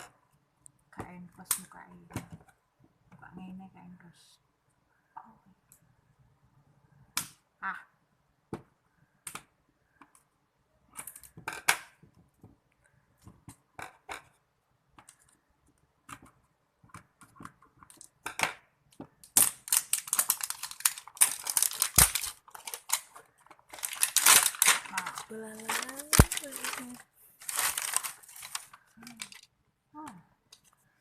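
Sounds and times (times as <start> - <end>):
plastic packaging clicks and rustles: 17.0 - 18.3, 18.9 - 29.6
wrapper crinkling and tearing: 19.2 - 29.5.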